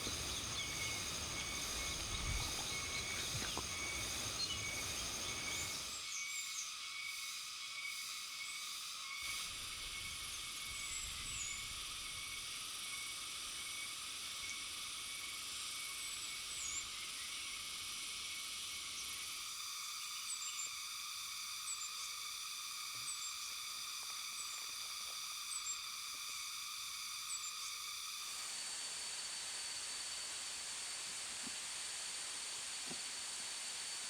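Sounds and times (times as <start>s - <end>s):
high-pitched bird calls: 0.0s - 5.9s
insects hissing: 0.0s - 6.2s, 8.7s - 34.0s.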